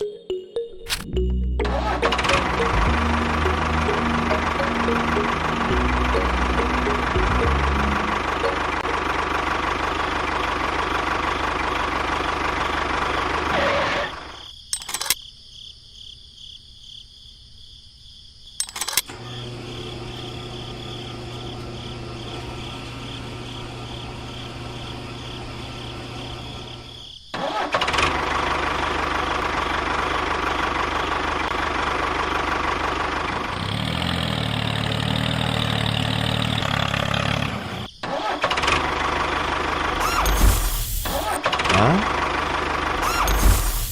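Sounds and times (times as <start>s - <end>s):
small model engine running: 39.8s - 43.9s.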